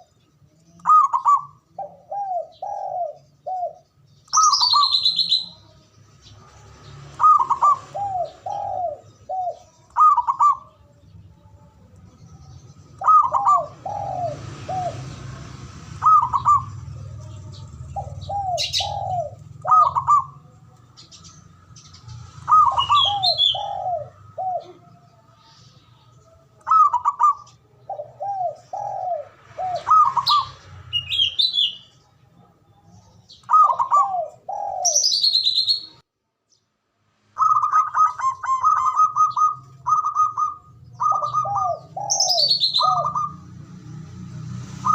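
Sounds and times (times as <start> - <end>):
small bird chirping: 0.0 - 29.0, 29.6 - 36.7
dove cooing: 0.7 - 11.1, 13.0 - 25.2, 26.6 - 32.5, 33.4 - 36.0, 37.4 - 43.5.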